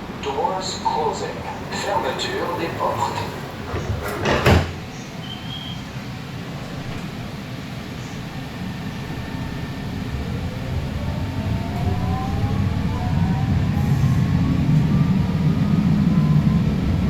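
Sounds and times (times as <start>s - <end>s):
electric traction motor whine: 0.0s - 17.0s
wheels rumbling on rail: 0.0s - 17.0s.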